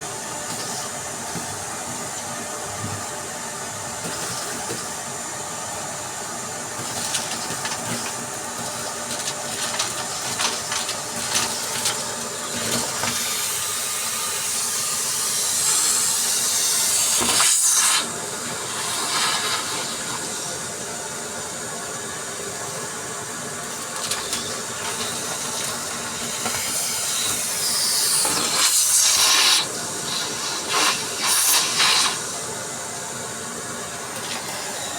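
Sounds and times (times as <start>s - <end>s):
vacuum cleaner running: 0.0s - 34.9s.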